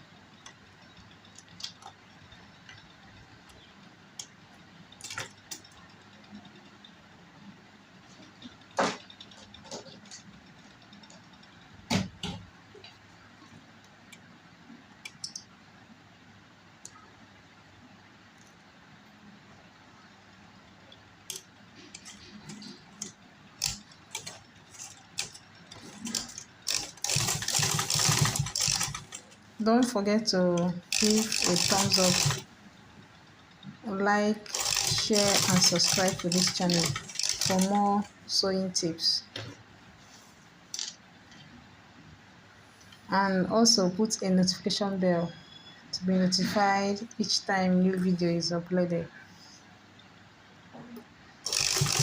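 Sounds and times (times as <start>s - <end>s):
sewing machine stitching: 21.3s - 29.4s, 30.8s - 32.5s, 34.4s - 38.1s, 51.4s - 52.0s.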